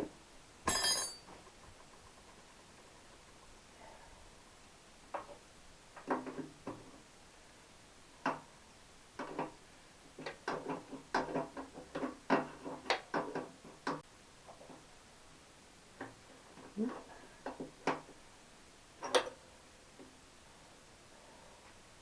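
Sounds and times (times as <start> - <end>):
metal tools and parts clinking: 0.7 - 1.3.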